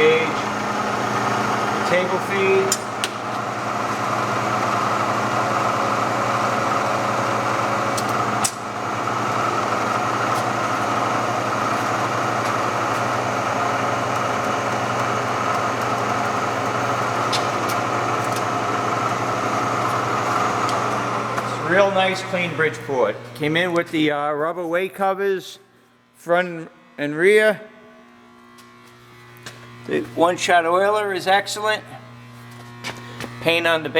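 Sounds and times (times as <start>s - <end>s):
milling machine motor whine: 0.0s - 24.0s, 26.6s - 33.9s
click: 7.9s - 8.6s.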